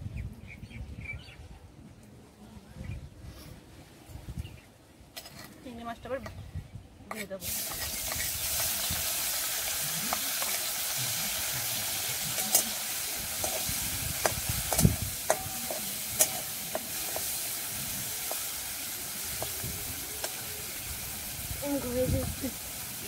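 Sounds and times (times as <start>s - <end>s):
spatula scraping metal wok: 7.1s - 21.0s
prawns sizzling in oil: 7.4s - 23.0s.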